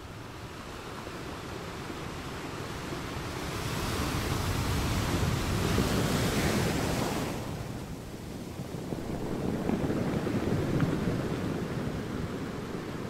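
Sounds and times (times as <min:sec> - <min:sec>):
wind buffeting microphone: 0:03.1 - 0:13.0.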